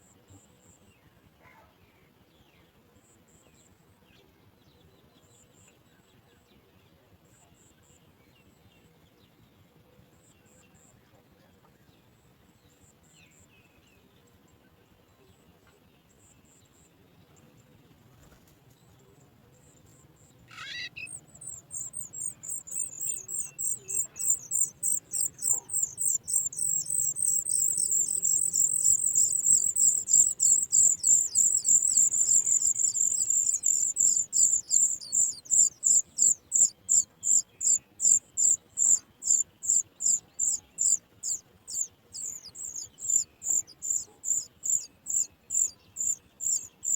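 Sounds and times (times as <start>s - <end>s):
nestlings begging chirps: 20.4s - 46.9s.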